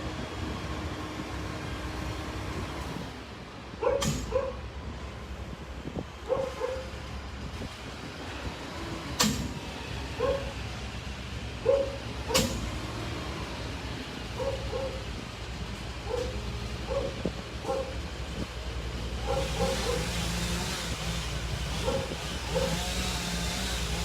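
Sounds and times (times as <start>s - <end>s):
heavy engine humming: 0.0s - 24.0s
dog barking: 3.8s - 4.6s, 6.3s - 6.9s, 10.2s - 10.6s, 11.6s - 12.4s, 14.4s - 15.0s, 16.1s - 17.9s, 19.2s - 20.1s, 21.8s - 22.8s.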